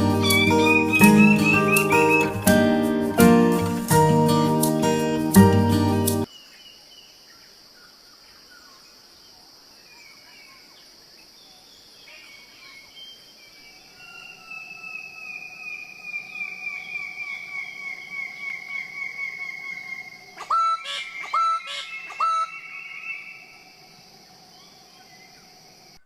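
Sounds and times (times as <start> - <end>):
high insect drone: 0.0 - 6.4, 7.1 - 26.0
long pulsing call falling in pitch: 0.1 - 2.7.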